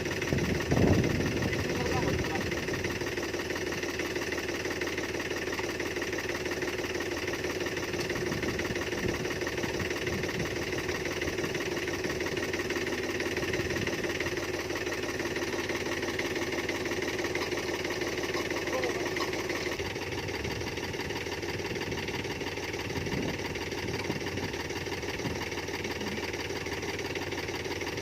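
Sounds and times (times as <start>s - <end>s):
farm engine running: 0.0s - 28.0s.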